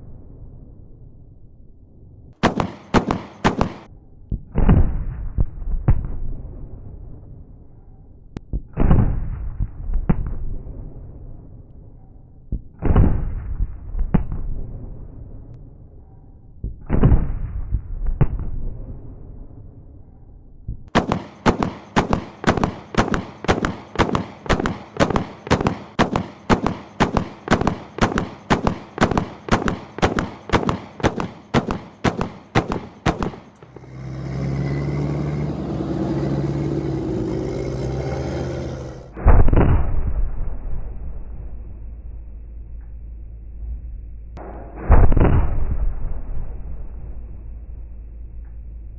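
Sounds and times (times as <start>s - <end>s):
steady low rumble: 0.0s - 34.1s, 38.6s - 48.9s
chain gun firing: 2.4s - 3.9s, 20.9s - 33.7s.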